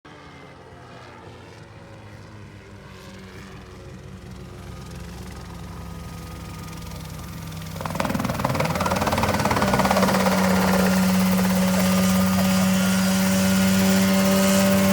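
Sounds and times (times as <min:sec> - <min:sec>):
helicopter engine and rotor: 0:04.0 - 0:14.9.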